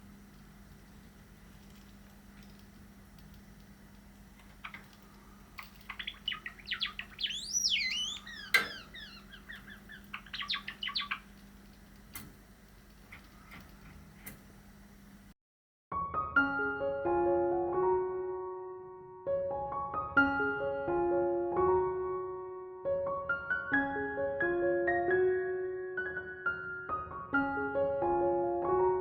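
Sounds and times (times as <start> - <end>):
sharp bird clicks: 2.4 - 13.9
sparrow singing: 4.4 - 12.1.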